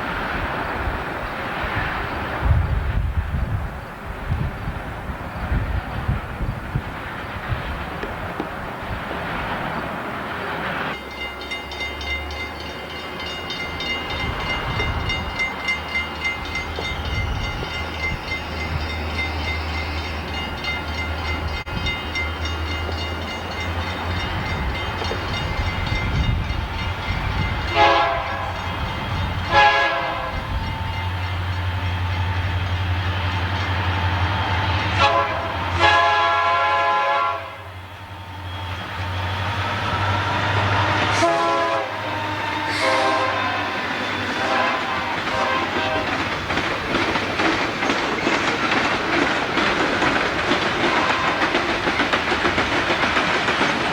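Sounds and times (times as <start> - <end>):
diesel locomotive engine rumble: 0.0 - 53.9
locomotive horn blasts: 27.6 - 30.7, 34.9 - 37.8, 38.6 - 46.2.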